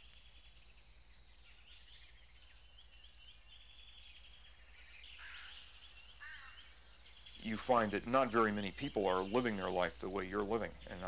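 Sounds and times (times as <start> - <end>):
low steady hum: 0.0 - 11.0
small birds chirping: 0.0 - 11.0.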